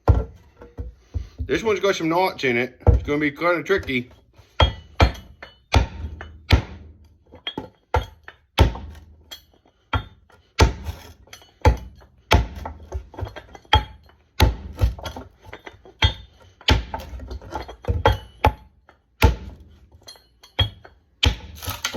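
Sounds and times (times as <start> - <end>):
pickaxe striking wood: 0.0 - 0.4, 4.6 - 9.1, 10.0 - 19.7, 20.6 - 21.9.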